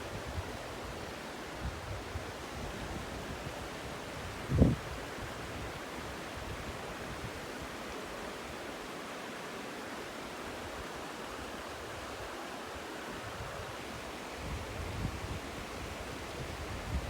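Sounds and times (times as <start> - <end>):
wind rumble on microphone: 1.6 - 7.4, 13.2 - 17.0.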